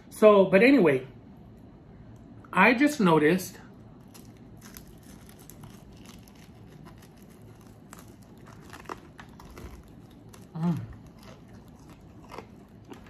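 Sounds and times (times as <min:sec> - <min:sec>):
crunchy chewing: 0:03.8 - 0:13.0.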